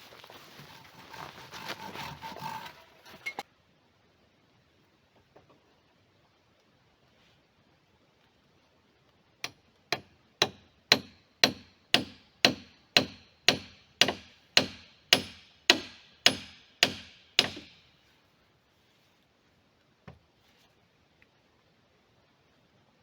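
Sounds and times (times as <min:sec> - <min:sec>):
hammer striking nail into timber: 0:09.5 - 0:17.8.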